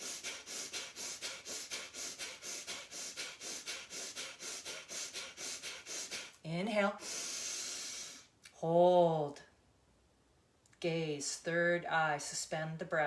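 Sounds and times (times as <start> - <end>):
forceful nasal exhalations: 0.0 - 8.4.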